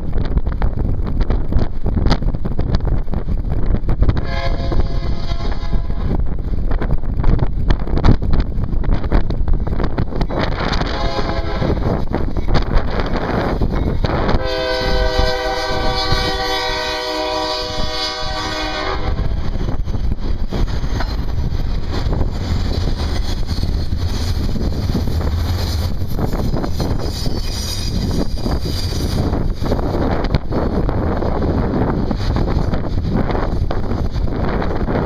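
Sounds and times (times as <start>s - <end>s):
locomotive air horn blast: 4.2s - 6.1s, 10.7s - 11.8s, 14.3s - 19.4s
low rumble: 17.4s - 35.0s.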